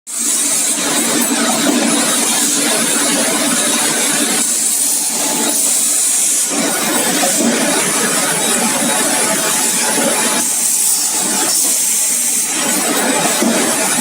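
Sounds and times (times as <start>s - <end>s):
machine hissing and humming: 0.1s - 14.0s.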